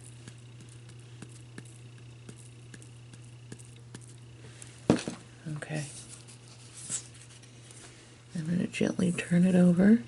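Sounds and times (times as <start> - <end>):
steady low hum: 0.0 - 10.0
glitter bottle tapping ticks: 0.1 - 4.4.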